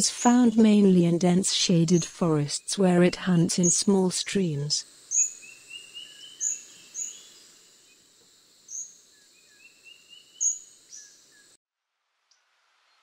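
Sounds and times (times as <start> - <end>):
steady high hiss: 0.2 - 11.6
sharp high bird calls: 5.1 - 7.4.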